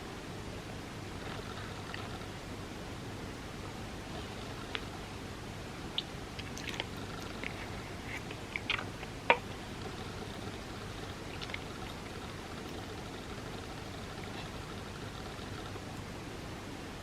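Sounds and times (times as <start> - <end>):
steady hiss: 0.0 - 17.0
mouth chewing with wet clicks: 4.2 - 5.0, 5.9 - 15.8.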